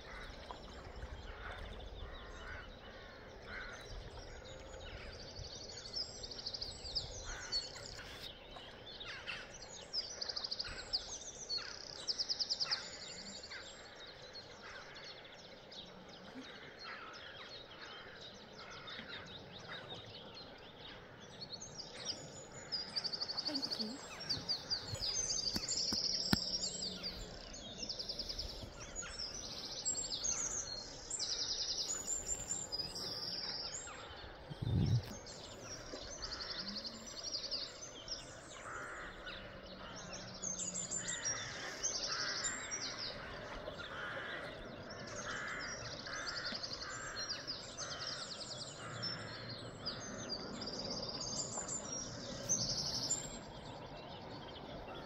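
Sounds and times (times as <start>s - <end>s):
songbirds singing trilled phrases: 17.1s - 55.0s.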